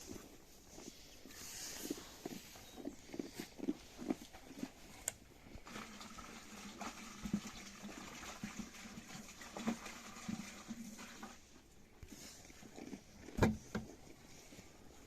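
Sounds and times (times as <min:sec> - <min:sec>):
milk squirting into a pail: 0:05.6 - 0:14.0.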